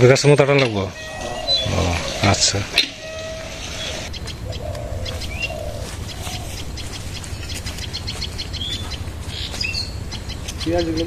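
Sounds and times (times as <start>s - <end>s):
birds chirping and twittering: 0.0s - 11.0s
low bird cooing: 0.9s - 11.0s
steady low rumble: 0.9s - 11.0s.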